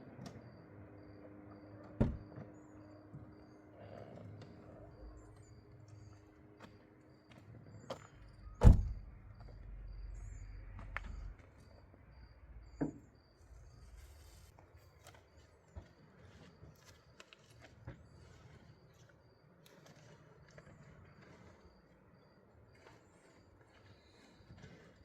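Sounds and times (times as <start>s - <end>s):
loud thump: 8.6s - 9.0s.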